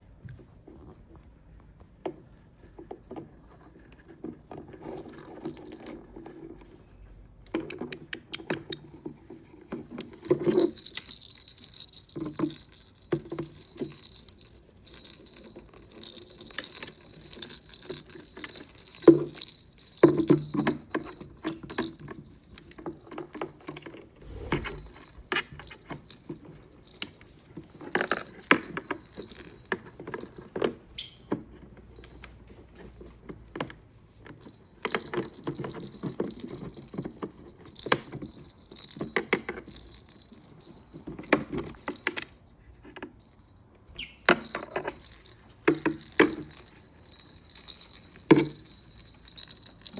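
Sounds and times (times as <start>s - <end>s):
small metal bell jingling: 2.6s - 7.1s, 7.8s - 49.9s
knocks and rustling: 24.2s - 32.2s.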